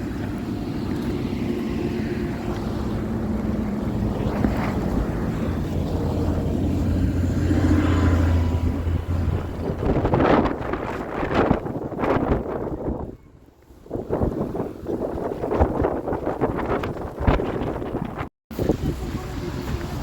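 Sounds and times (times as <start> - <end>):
vehicle engine humming: 0.0 - 13.1.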